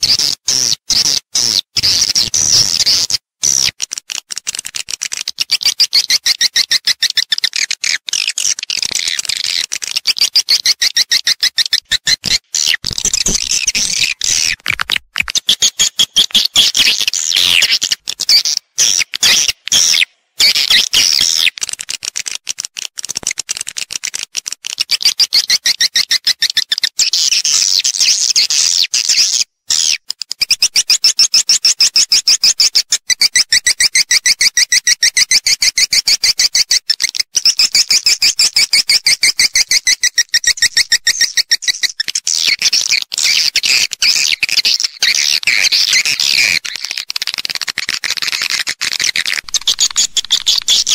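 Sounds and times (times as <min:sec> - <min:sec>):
swiftlets chirping: 0:48.9 - 0:50.9.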